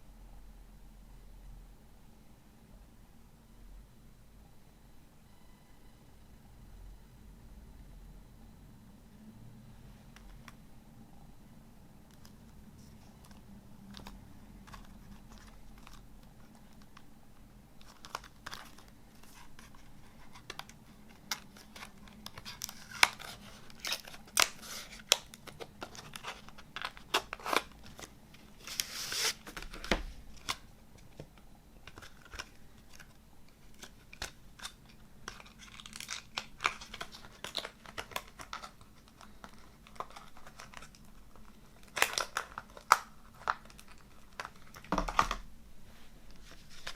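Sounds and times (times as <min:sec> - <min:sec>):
wrapping crinkling and tearing: 0:12.1 - 0:17.1, 0:17.8 - 0:30.7, 0:31.8 - 0:45.4.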